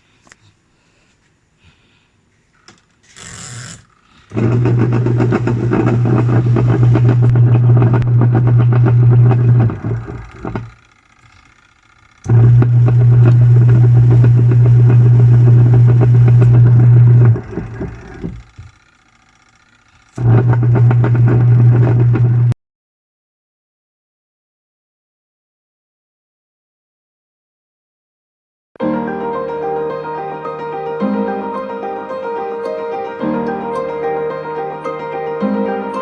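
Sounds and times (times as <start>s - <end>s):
washing machine motor rattling: 2.5s - 22.5s.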